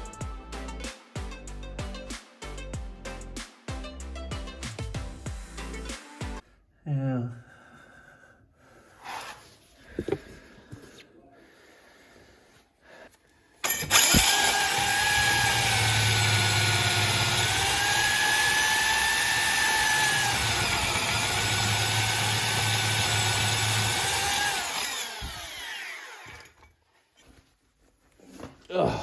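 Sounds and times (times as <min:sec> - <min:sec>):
power drill whining: 0:13.6 - 0:26.7.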